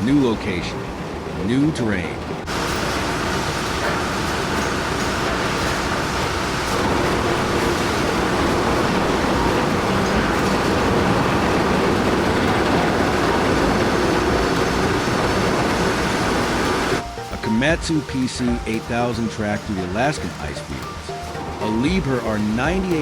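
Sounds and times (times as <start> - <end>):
heavy machinery rumbling: 0.0 - 23.0.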